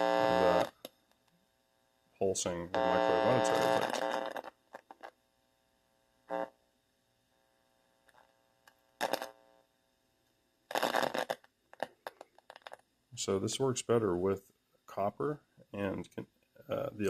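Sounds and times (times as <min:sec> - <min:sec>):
amplifier buzz bursts: 0:00.0 - 0:00.9, 0:02.3 - 0:05.2, 0:06.0 - 0:06.7, 0:07.6 - 0:09.8, 0:10.7 - 0:12.2
faint electrical hum: 0:00.0 - 0:17.0.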